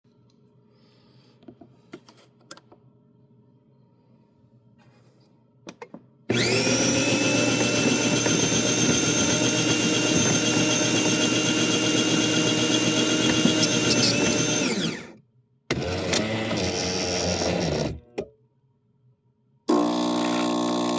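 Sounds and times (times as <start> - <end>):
coffee grinder motor whining: 6.3 - 18.1, 19.7 - 20.9.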